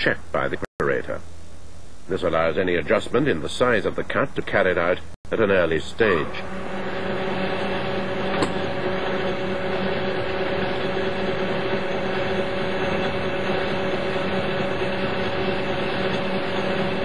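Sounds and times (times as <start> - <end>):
lathe machine hum: 5.4 - 17.0.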